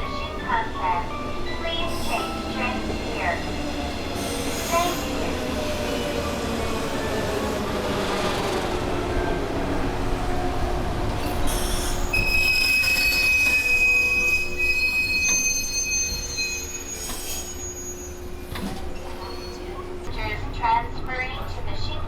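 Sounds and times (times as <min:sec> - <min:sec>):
train brake and wheel squeal: 0:04.2 - 0:05.3, 0:11.2 - 0:19.8.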